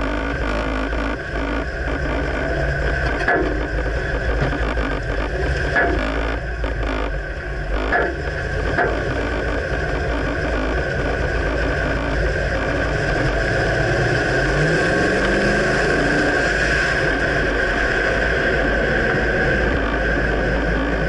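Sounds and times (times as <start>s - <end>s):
pickup truck engine rumble: 0.0s - 21.0s
sharp knocks: 0.4s - 7.1s, 7.8s - 10.7s.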